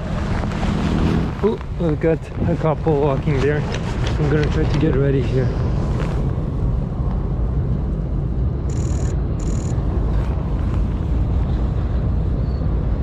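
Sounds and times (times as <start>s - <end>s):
wind buffeting microphone: 0.0s - 13.0s
rapid high-pitched clicking: 8.7s - 9.8s.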